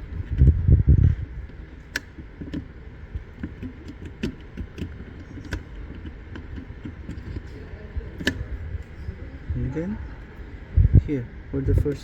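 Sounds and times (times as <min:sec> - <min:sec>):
equipment clicks: 0:00.0 - 0:09.0.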